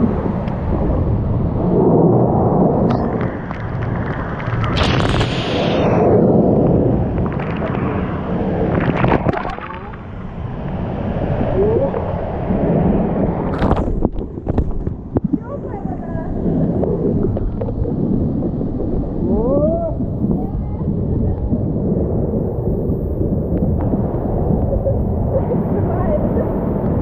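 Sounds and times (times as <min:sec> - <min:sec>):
rushing water: 0:00.0 - 0:27.0
wind buffeting microphone: 0:00.0 - 0:27.0
sharp knocks or splashes: 0:08.7 - 0:10.0.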